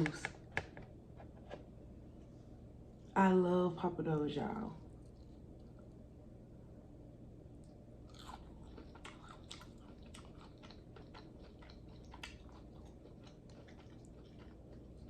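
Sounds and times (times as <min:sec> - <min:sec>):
chewing and biting: 0:08.1 - 0:15.0.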